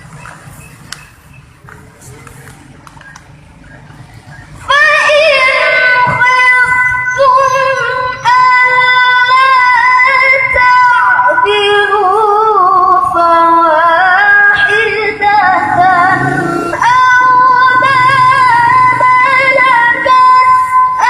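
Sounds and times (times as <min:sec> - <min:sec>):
girl reciting melodically: 0:04.5 - 0:21.0.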